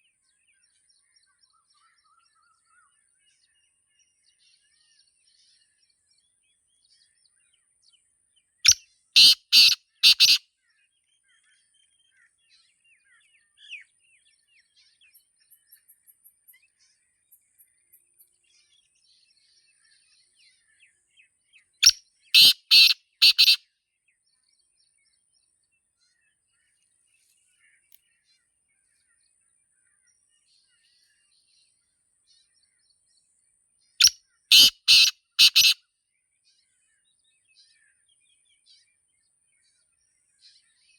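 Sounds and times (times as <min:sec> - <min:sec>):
small birds chirping: 0:00.0 - 0:40.9
francolin calling: 0:08.7 - 0:10.4, 0:21.8 - 0:23.6, 0:34.5 - 0:35.8.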